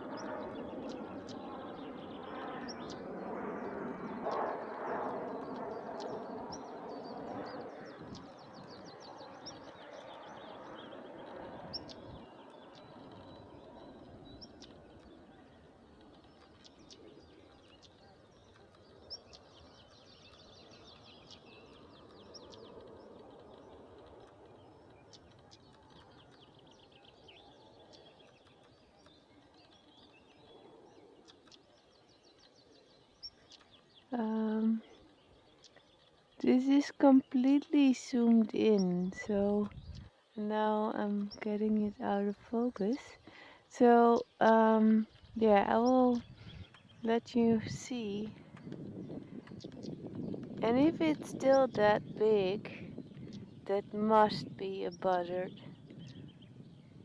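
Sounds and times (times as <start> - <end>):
songbirds chirping and trilling: 0.0 - 57.0
wind rushing: 46.1 - 54.6.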